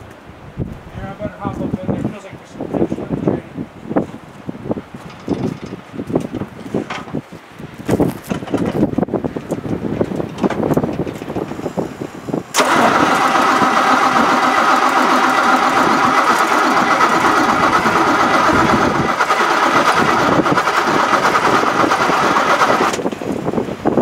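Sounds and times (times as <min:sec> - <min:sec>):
wind noise on microphone: 0:00.0 - 0:24.0
engine starter cranking: 0:12.5 - 0:23.1.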